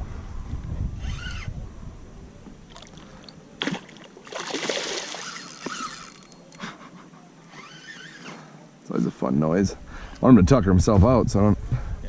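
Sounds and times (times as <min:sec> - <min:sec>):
fish thrashing in water: 0:03.6 - 0:06.0
fish splashing: 0:03.6 - 0:06.3.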